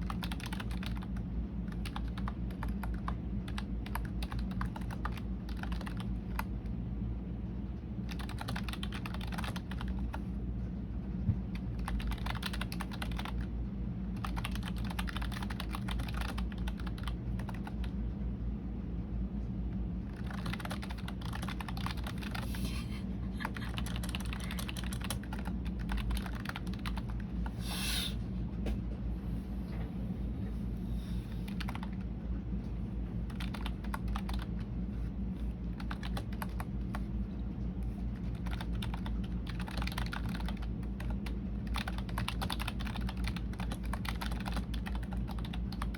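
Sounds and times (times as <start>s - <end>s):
keyboard typing: 0.0s - 6.5s, 8.0s - 10.2s, 11.5s - 13.5s, 14.2s - 18.0s, 20.1s - 22.5s, 23.4s - 27.5s, 31.5s - 32.0s, 33.2s - 34.7s, 35.4s - 37.1s, 37.8s - 45.9s
steady low hum: 0.0s - 45.9s.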